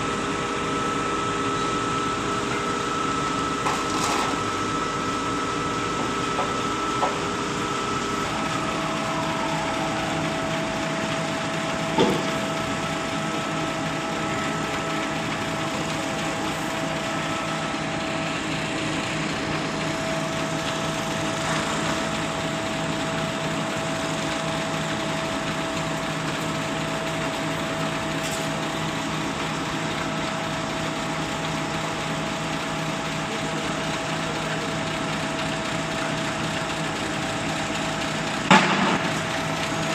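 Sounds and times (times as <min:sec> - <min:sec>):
high whine: 0:00.0 - 0:26.0
concrete pump truck running: 0:00.0 - 0:39.9.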